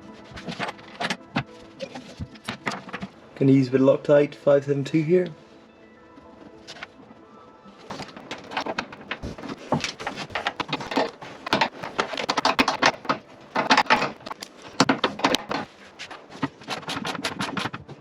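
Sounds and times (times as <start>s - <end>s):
metal fasteners clicking and clattering: 7.9s - 18.0s.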